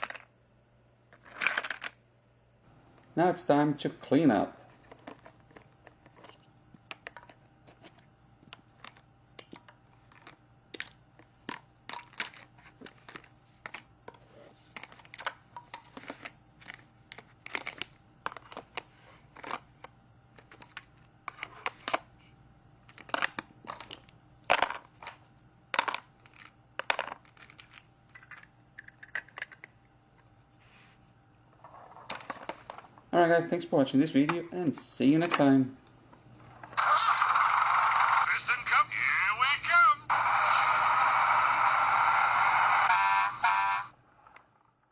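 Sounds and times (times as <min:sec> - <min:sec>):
plastic toy pieces clattering: 0:01.2 - 0:02.0, 0:22.9 - 0:25.2, 0:25.8 - 0:29.7.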